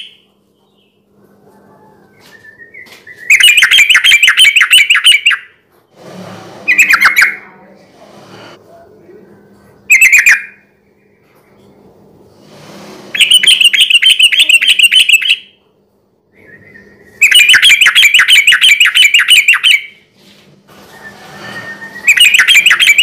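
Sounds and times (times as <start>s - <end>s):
bird chirping sharply: 2.8s - 5.5s, 6.7s - 7.4s, 13.2s - 15.6s, 16.5s - 20.0s, 21.7s - 23.0s.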